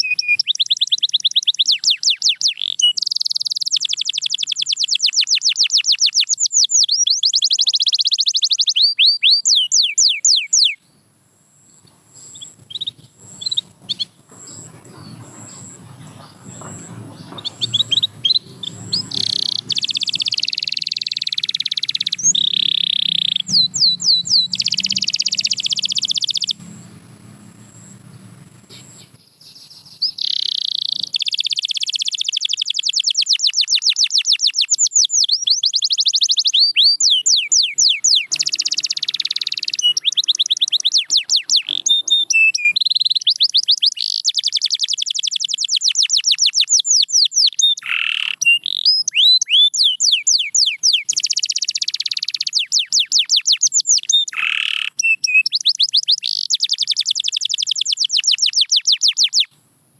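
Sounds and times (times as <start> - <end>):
canary singing trills: 0.0 - 11.0, 11.6 - 59.6.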